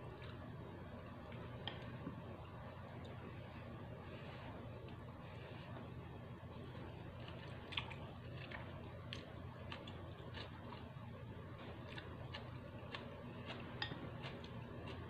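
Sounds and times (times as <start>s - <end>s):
faint low hum: 0.0s - 15.0s
wet chewing noodles: 6.8s - 15.0s.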